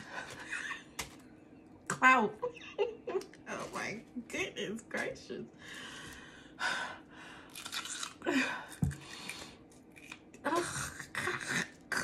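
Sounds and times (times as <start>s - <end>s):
person crunching hard food: 7.4s - 10.4s.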